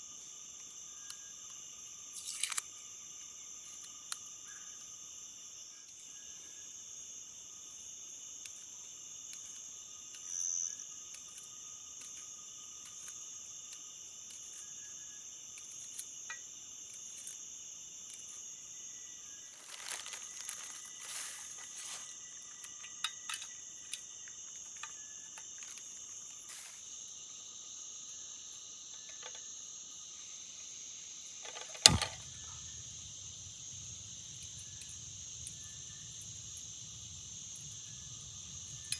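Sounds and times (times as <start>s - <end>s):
crickets and insects trilling: 0.0s - 38.9s
rustling: 19.4s - 22.7s, 25.6s - 26.9s
sharp click: 31.4s - 33.8s.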